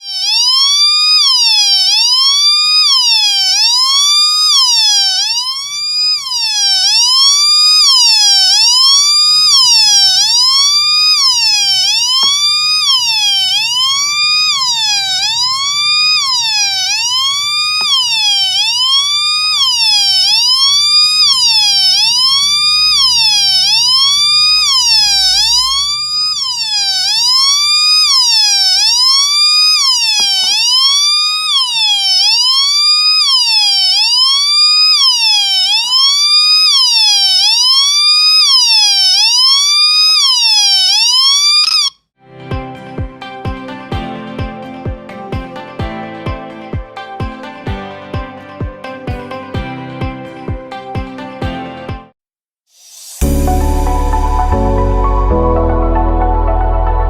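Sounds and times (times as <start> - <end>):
electronic siren tone: 0.0 - 52.1.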